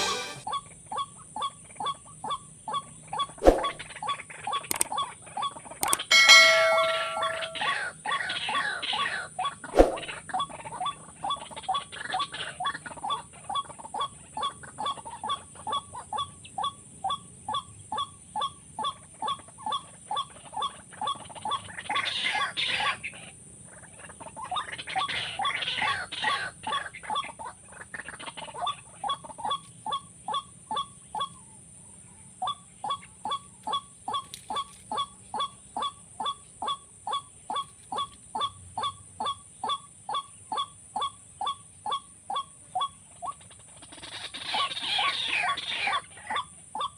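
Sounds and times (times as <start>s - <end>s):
waterhen call: 0.0s - 9.2s, 32.5s - 46.9s.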